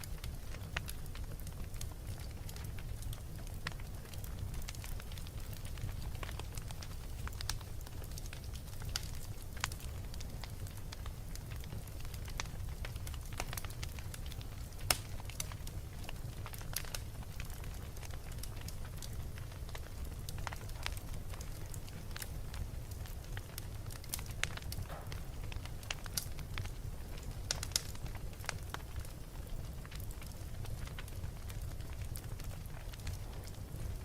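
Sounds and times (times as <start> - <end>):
fire pops and crackles: 0.0 - 34.0
low rumble of flames: 0.0 - 34.0.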